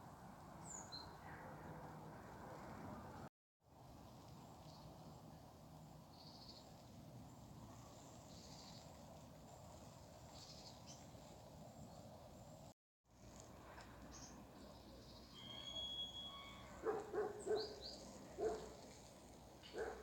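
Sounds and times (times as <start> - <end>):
faint outdoor ambience: 0.0 - 20.0
short high chirps: 15.3 - 16.8.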